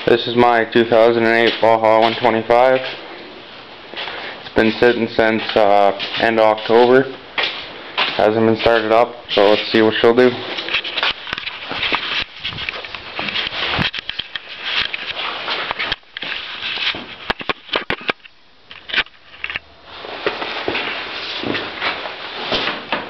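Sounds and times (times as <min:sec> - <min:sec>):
scuffing and rustling: 0:00.0 - 0:17.7, 0:19.8 - 0:23.0
sharp clicks and knocks: 0:10.7 - 0:19.6.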